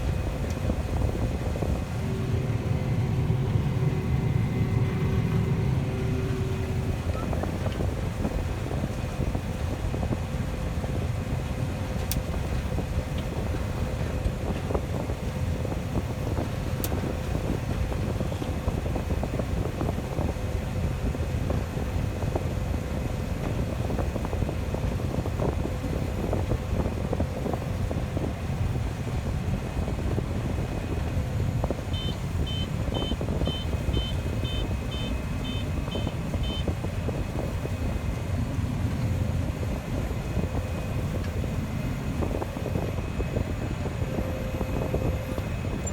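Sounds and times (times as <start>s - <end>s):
farm machinery engine running: 0.0s - 45.9s
short high beeps: 32.0s - 36.6s.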